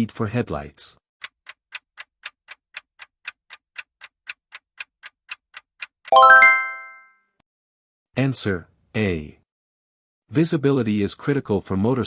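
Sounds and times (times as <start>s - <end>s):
clock ticking: 1.2s - 6.5s
rising ringing chime: 6.1s - 7.1s.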